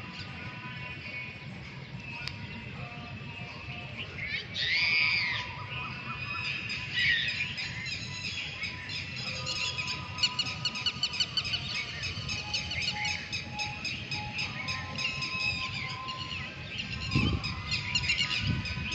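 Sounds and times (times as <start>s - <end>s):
small birds chirping: 1.8s - 18.9s
whistled bird notes: 4.2s - 18.9s.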